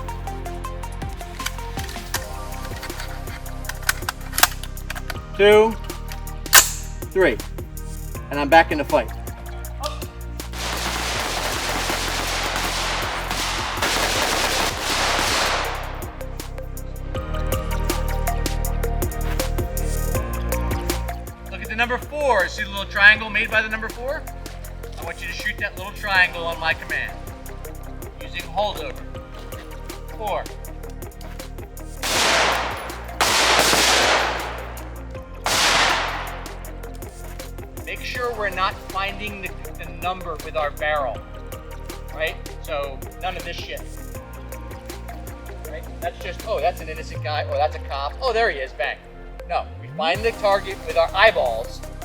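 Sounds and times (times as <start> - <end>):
background music: 0.0 - 52.0
rapid rifle fire: 10.6 - 16.2, 32.0 - 36.8.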